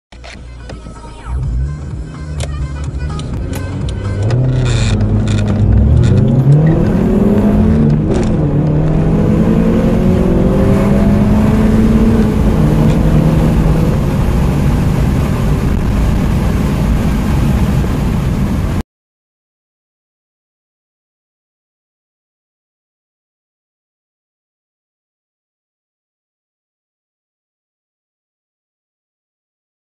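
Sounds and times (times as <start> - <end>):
car engines accelerating: 1.1 - 18.8.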